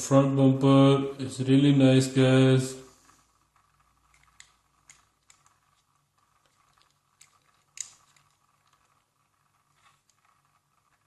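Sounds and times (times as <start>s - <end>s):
toy car clicks and taps: 4.1s - 8.9s.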